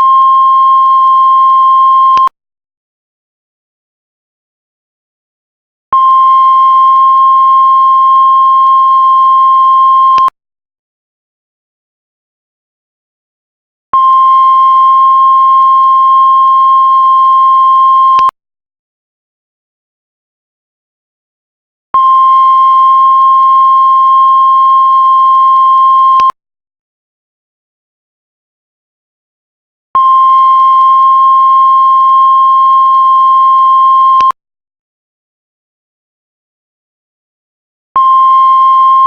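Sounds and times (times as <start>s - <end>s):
heart monitor flatline beep: 0.0s - 2.3s, 6.0s - 10.4s, 14.0s - 18.4s, 22.0s - 26.4s, 30.0s - 34.4s, 38.0s - 39.0s.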